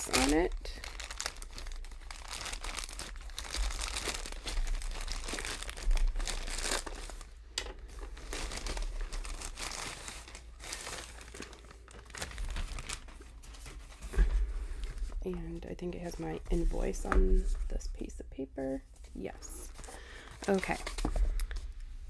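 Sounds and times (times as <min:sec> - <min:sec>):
packaging crinkling and tearing: 0:00.0 - 0:14.2, 0:19.7 - 0:21.8.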